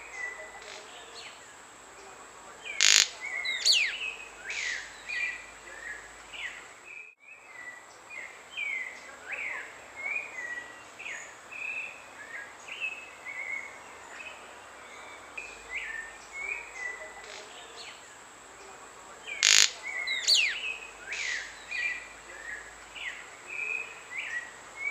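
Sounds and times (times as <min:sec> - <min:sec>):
bird short chirps: 0:02.8 - 0:04.8, 0:19.4 - 0:21.5.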